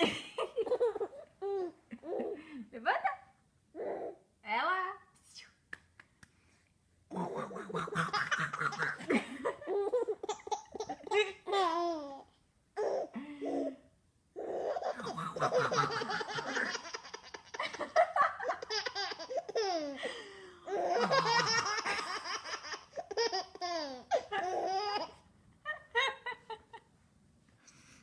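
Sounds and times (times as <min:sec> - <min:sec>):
baby laughing: 0:00.0 - 0:02.4, 0:07.1 - 0:13.7, 0:14.4 - 0:25.2.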